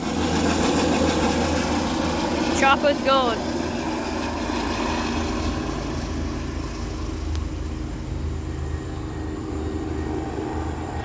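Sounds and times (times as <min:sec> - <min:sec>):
low engine rumble: 0:05.3 - 0:11.0.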